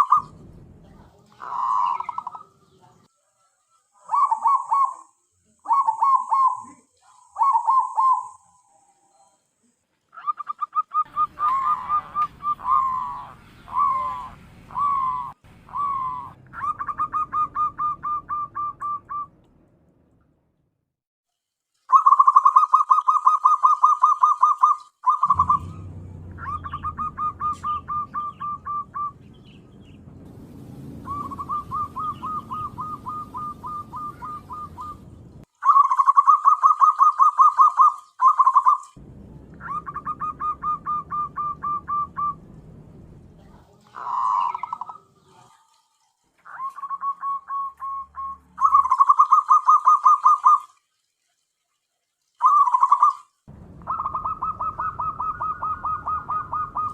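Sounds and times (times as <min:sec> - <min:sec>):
dove cooing trills: 0:00.0 - 0:00.3, 0:01.3 - 0:02.6, 0:04.0 - 0:09.2, 0:10.2 - 0:19.3, 0:21.9 - 0:29.6, 0:31.0 - 0:38.9, 0:39.6 - 0:42.4, 0:43.9 - 0:45.7, 0:46.4 - 0:50.7, 0:52.4 - 0:53.2, 0:53.8 - 0:56.9
low hum: 0:00.0 - 0:02.5, 0:25.2 - 0:35.5, 0:39.0 - 0:45.0, 0:53.5 - 0:56.9.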